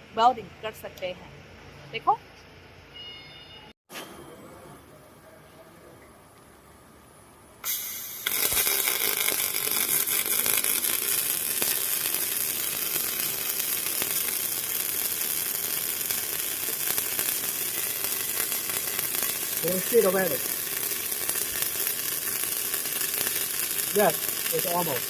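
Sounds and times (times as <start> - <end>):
welding arc crackling: 7.6 - 25.0.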